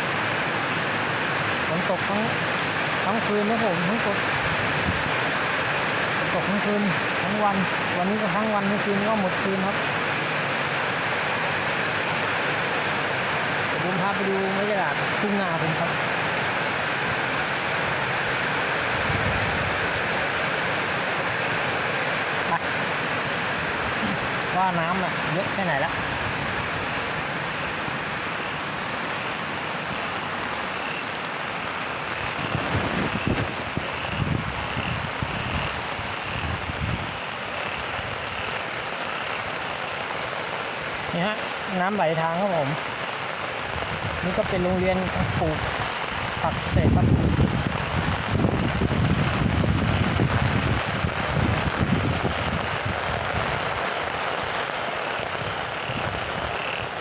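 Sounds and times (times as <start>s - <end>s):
heavy rain hissing: 0.0s - 57.0s
wind buffeting microphone: 18.9s - 20.1s, 32.2s - 37.2s, 43.6s - 53.8s.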